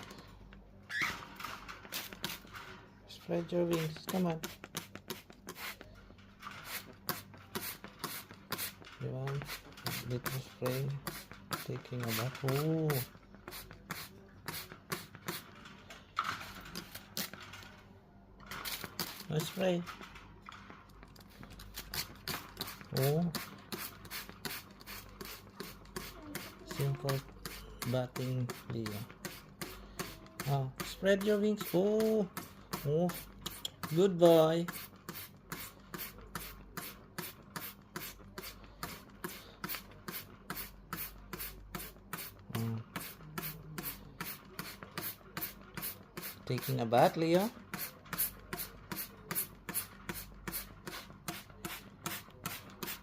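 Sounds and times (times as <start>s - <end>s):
spray bottle squirting: 1.8s - 2.5s, 3.7s - 5.8s, 6.6s - 15.6s, 21.7s - 31.0s, 31.6s - 34.0s, 34.6s - 46.7s, 47.7s - 53.0s.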